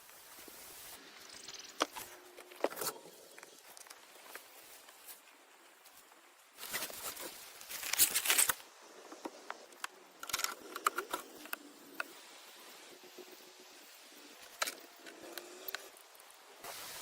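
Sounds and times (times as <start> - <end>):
rustling and scraping handling: 1.7 - 11.5.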